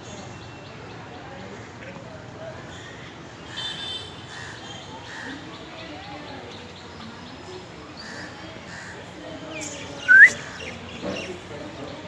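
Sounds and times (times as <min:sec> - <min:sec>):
whistled note sliding upward: 0:10.1 - 0:10.4.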